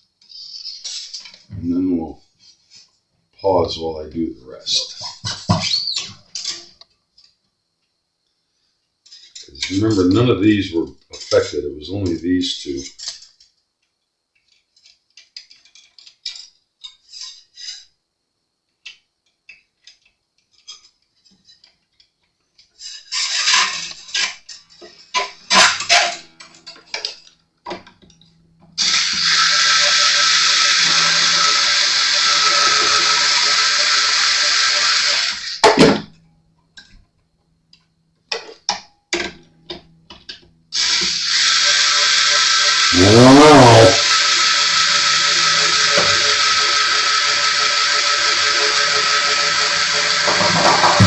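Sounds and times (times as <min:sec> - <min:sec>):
loud steady hiss: 0:00.0 - 0:06.8, 0:09.2 - 0:13.2, 0:28.4 - 0:36.1, 0:40.7 - 0:51.0
guitar tuning machines clicking: 0:25.2 - 0:35.8, 0:38.7 - 0:43.0, 0:44.0 - 0:51.0
guitar string scraping: 0:41.8 - 0:51.0.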